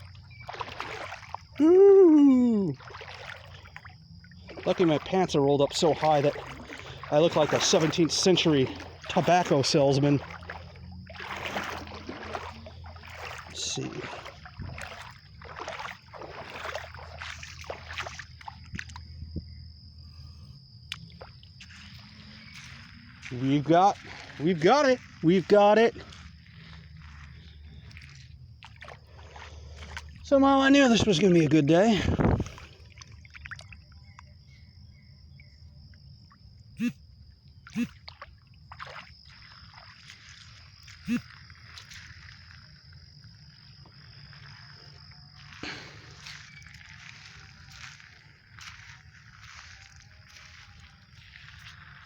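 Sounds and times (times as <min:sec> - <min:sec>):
water dripping: 0:00.0 - 0:19.2, 0:32.5 - 0:34.3
water splashing and sloshing: 0:00.0 - 0:52.0.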